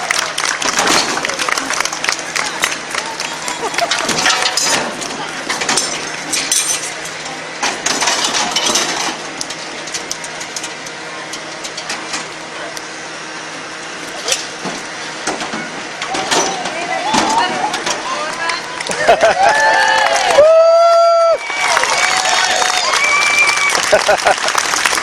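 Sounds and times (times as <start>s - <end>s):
murmur of crowd voices: 0.0s - 20.4s
metal tools clinking and knocking: 3.5s - 7.1s.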